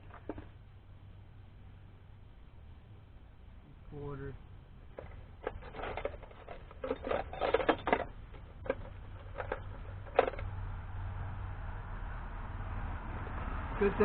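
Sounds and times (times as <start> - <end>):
low steady hum: 0.0 - 14.0
metal tools clinking: 5.0 - 10.4.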